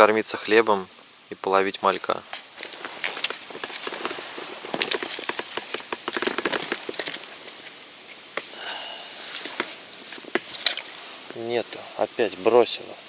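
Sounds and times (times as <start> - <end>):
irregular clicks and knocks: 2.3 - 8.5.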